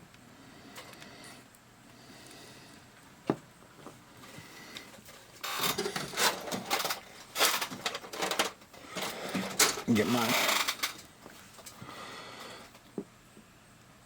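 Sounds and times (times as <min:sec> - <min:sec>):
small tools rustling and clattering: 0:03.3 - 0:11.8.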